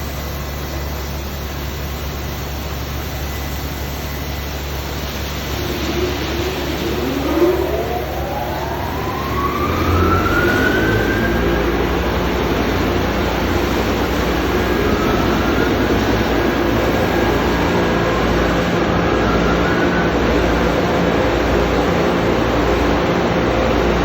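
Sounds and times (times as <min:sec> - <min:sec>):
car wash rushing noise: 0:01.5 - 0:24.0
low hum: 0:04.6 - 0:17.5
motor whine rising in pitch: 0:04.6 - 0:22.9.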